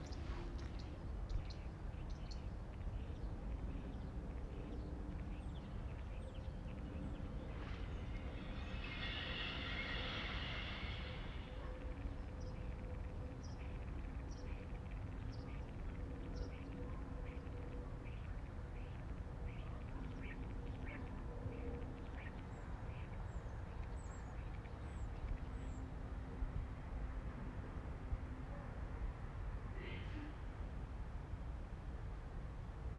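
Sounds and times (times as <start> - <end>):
faint hum: 0.0 - 32.9
steady low rumble: 0.0 - 32.9
wild birds calling: 3.1 - 23.2.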